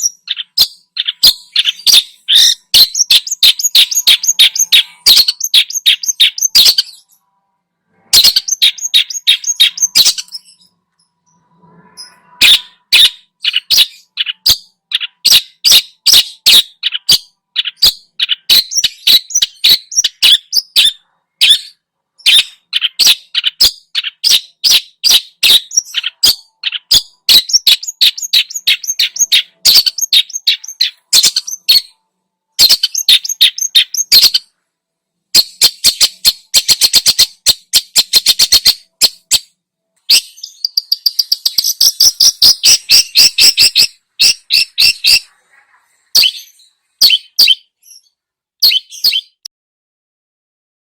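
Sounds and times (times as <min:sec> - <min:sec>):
bird singing sharp notes: 0:00.0 - 0:32.0.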